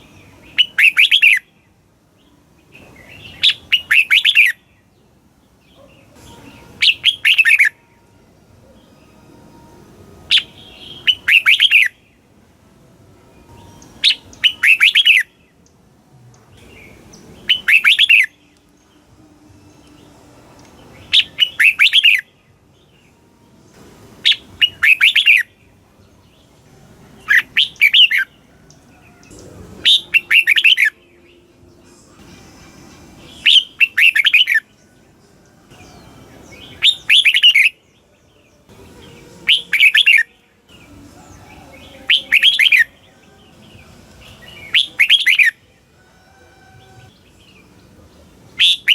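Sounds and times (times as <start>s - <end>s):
bird warbling song: 0.0s - 1.6s, 2.2s - 8.0s, 10.3s - 12.2s, 13.5s - 15.8s, 16.4s - 23.2s, 24.2s - 26.5s, 27.2s - 32.4s, 33.2s - 45.8s, 46.7s - 48.9s.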